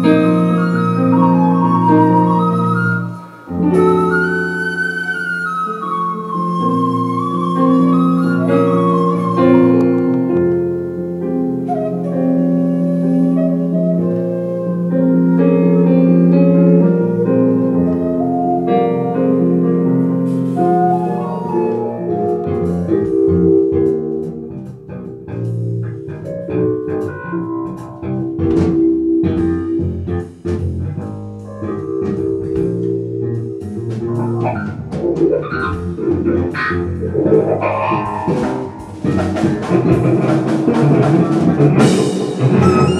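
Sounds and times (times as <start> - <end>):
drum kit: 0.0 - 14.2, 14.8 - 42.9
sliding wind instrument note: 0.0 - 24.0, 41.8 - 42.9
bass: 0.0 - 42.9
keyboard and guitar chords: 0.0 - 42.9.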